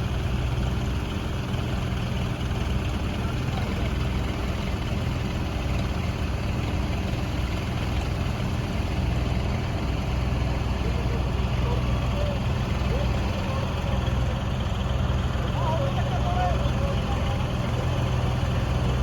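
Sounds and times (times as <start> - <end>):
diesel tractor engine running: 0.0 - 19.0.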